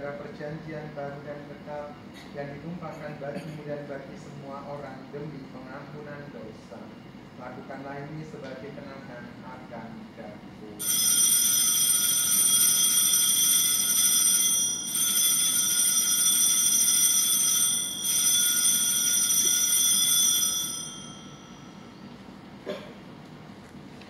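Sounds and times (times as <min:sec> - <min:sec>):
high shimmering bell ringing: 0:10.8 - 0:22.2.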